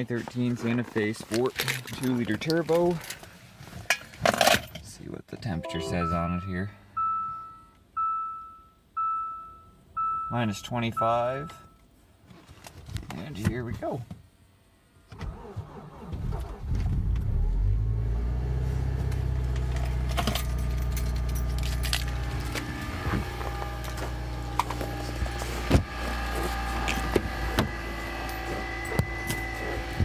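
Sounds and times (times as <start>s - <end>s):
car engine cranking and idling: 15.2s - 30.0s.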